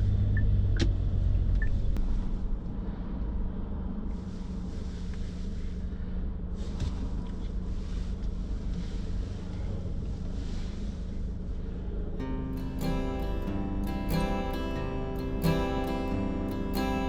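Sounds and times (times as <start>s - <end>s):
car engine: 0.0s - 4.5s
road rumble: 0.0s - 17.0s.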